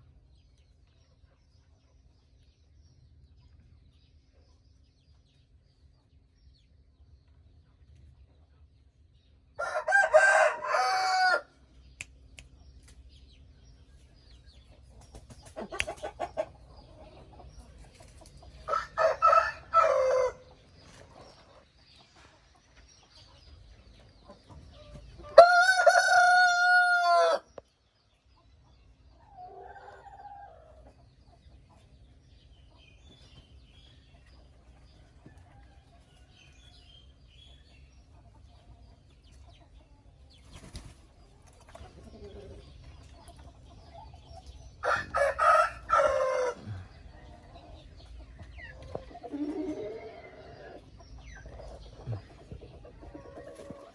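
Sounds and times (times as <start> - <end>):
soft chicken clucks: 0.0 - 53.9
rooster crowing: 9.6 - 11.5, 18.7 - 20.4, 25.4 - 27.5, 44.8 - 46.8.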